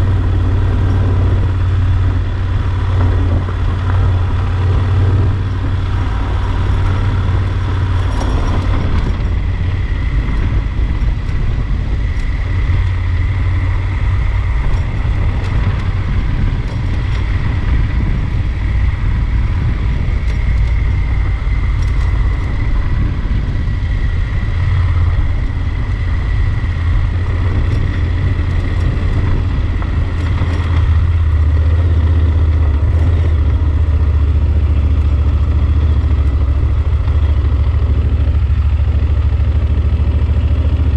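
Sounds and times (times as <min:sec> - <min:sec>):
motorcycle engine running: 0:00.0 - 0:40.9
wind rumble on microphone: 0:00.0 - 0:40.9.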